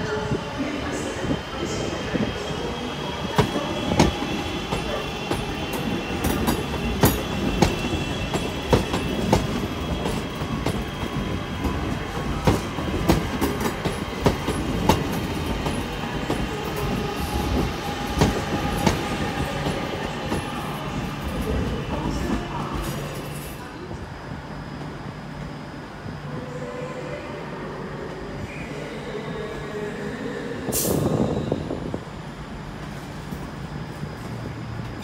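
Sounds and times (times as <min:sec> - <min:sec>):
train rumble: 0:00.0 - 0:28.5
train wheels clicking over joints: 0:03.3 - 0:23.6.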